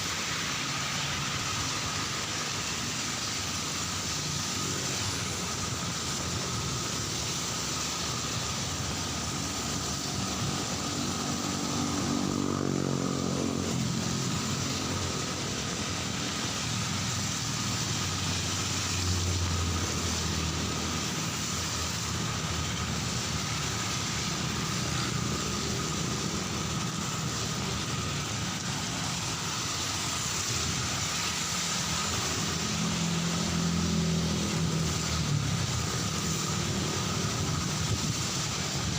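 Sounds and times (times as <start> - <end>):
cars and motorbikes passing: 0.0 - 38.9
heavy rain hissing: 0.0 - 38.9.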